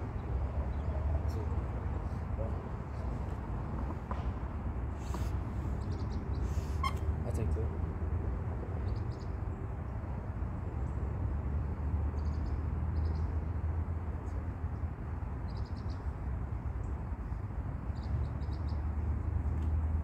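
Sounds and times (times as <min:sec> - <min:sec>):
low rumble with hiss: 0:00.0 - 0:20.0
small birds chirping: 0:05.0 - 0:07.6.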